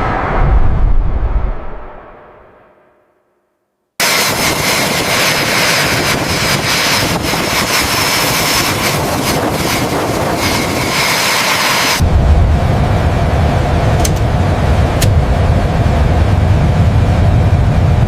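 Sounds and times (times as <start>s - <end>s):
deep low rumble: 0.0s - 3.0s, 12.0s - 18.0s
jet engine roaring with whine: 4.0s - 18.0s.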